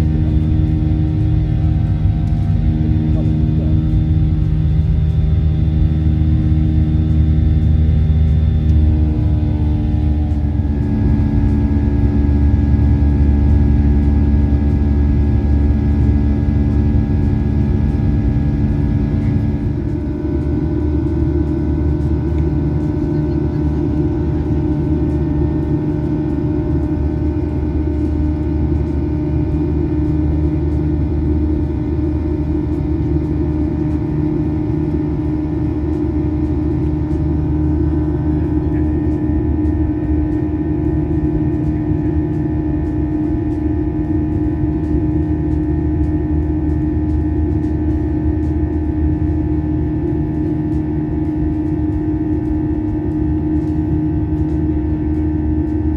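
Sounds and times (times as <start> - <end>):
jet engine rumble in cabin: 0.0 - 55.9.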